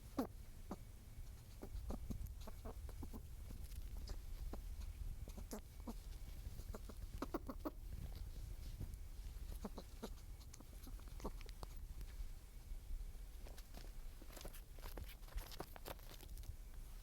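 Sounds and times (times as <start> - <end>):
clucking animal calls: 0.0 - 8.3, 9.3 - 11.8
steady low rumble: 0.0 - 17.0.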